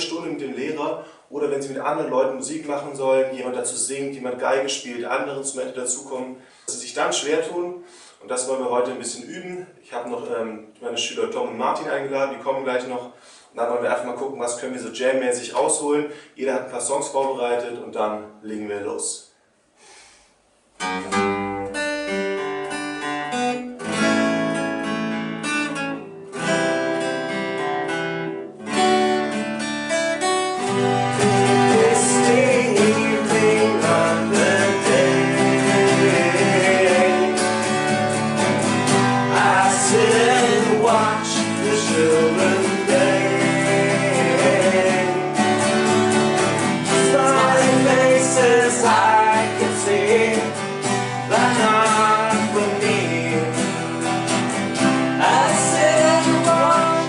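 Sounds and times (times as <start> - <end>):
acoustic guitar chords: 20.7 - 57.0.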